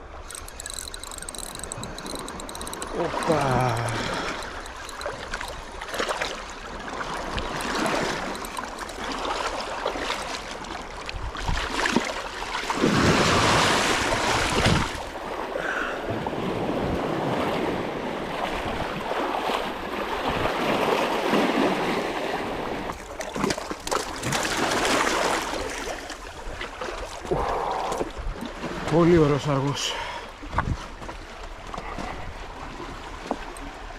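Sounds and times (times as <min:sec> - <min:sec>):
sea waves washing in: 0:05.1 - 0:23.2
wind buffeting microphone: 0:12.9 - 0:15.1.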